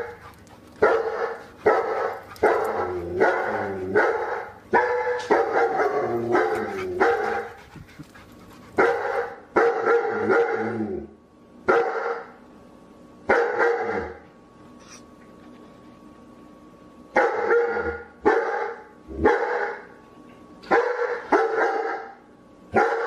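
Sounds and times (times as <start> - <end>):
dog barking: 0.8 - 7.6, 8.8 - 10.7, 11.7 - 12.3, 13.3 - 14.2, 17.2 - 19.9, 20.7 - 23.0.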